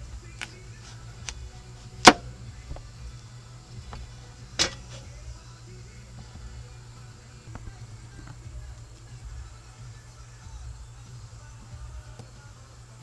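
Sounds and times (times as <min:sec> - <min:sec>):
low steady hum: 0:00.0 - 0:13.0
sharp knocks: 0:01.2 - 0:03.1.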